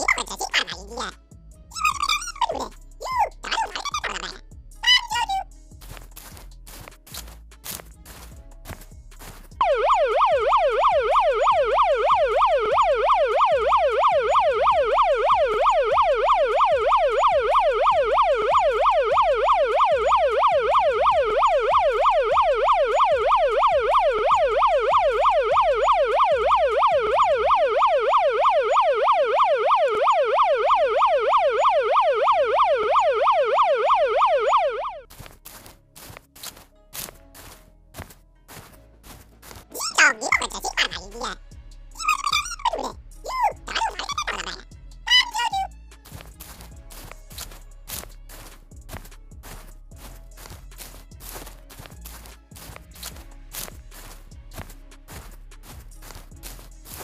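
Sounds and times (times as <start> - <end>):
police siren yelp: 0.0 - 5.4, 9.6 - 35.0, 39.8 - 41.4, 42.0 - 45.7.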